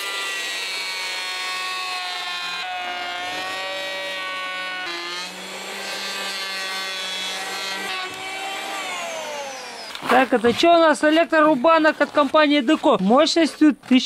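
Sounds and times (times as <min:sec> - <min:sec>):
electric planer whining: 0:00.0 - 0:10.4.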